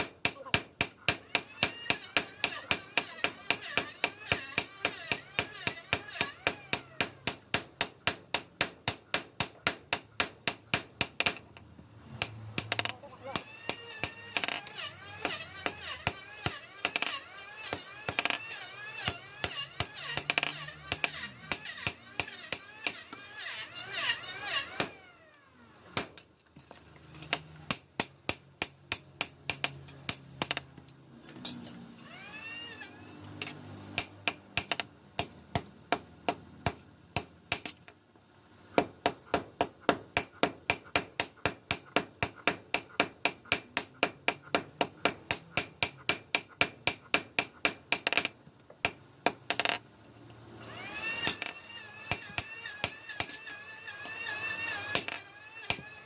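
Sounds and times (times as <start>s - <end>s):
hammer striking steel: 12.2s - 23.0s.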